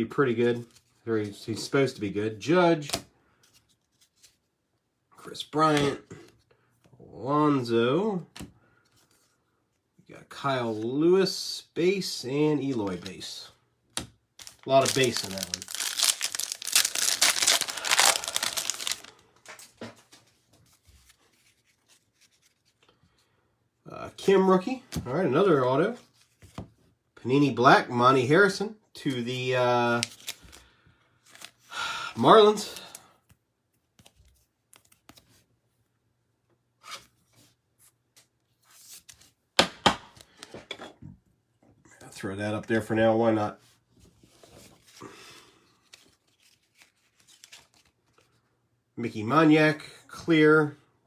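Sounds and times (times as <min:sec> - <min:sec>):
card pack wrapper crinkling: 0:14.4 - 0:19.7, 0:29.4 - 0:30.6, 0:31.2 - 0:31.6, 0:45.8 - 0:48.2.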